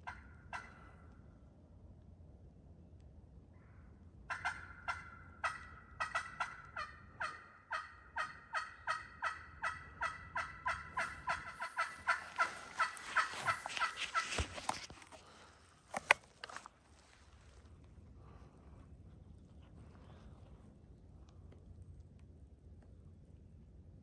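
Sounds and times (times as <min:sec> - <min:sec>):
turkey yelps on friction call: 0:04.3 - 0:14.5.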